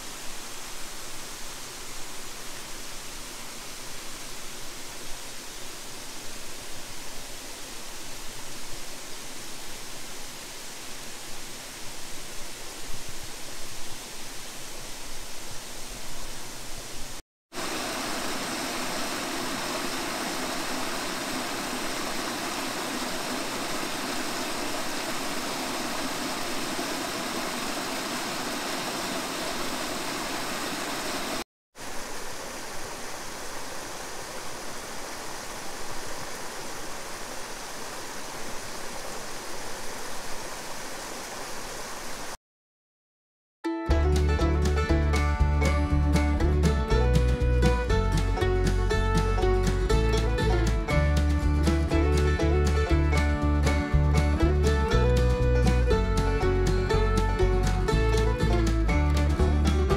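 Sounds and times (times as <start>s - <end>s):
stream flowing over rocks: 0.0s - 42.4s.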